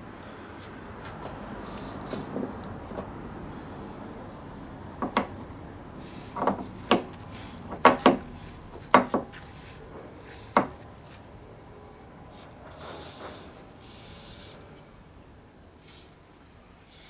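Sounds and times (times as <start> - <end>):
hard objects knocking and clunking: 5.0 - 5.6, 6.2 - 9.5, 10.5 - 10.9.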